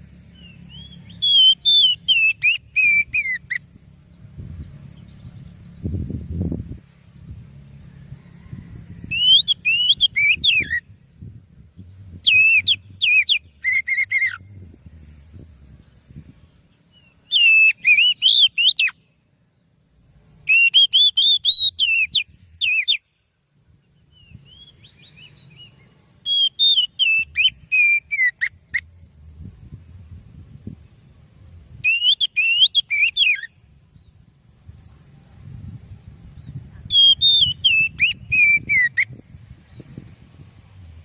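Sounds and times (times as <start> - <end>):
bird singing whistled notes: 0.0 - 41.0
faint low hum: 10.8 - 17.4, 27.2 - 31.9, 33.4 - 41.0.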